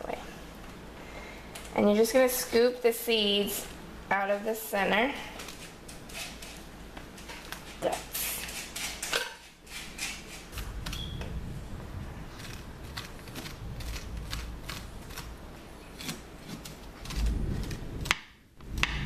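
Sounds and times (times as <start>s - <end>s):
spoon scraping squash: 5.4s - 11.4s, 12.3s - 18.1s.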